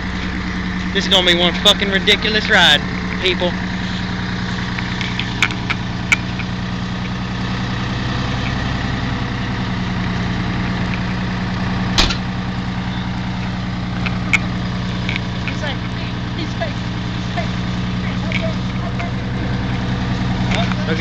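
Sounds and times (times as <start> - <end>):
diesel truck engine idling: 0.0 - 21.0
sharp knock: 12.0 - 12.2.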